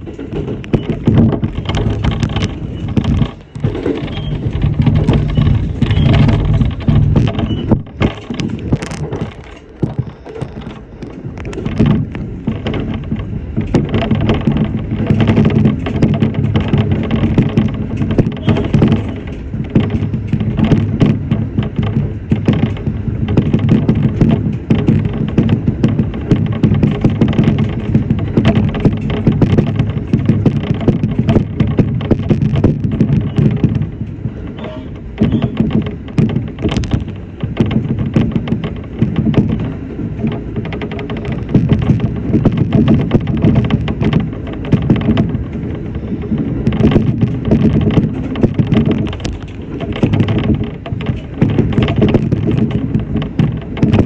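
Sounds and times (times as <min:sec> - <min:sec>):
electric train rumble and hum: 0:00.0 - 0:54.0
wheels clicking on track: 0:00.0 - 0:54.0.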